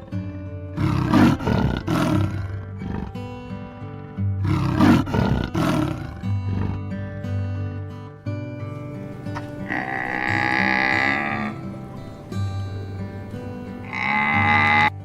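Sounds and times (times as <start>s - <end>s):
background music: 0.0s - 15.0s
big cat roaring: 0.8s - 3.5s, 4.4s - 6.9s, 9.5s - 12.1s, 13.8s - 14.9s.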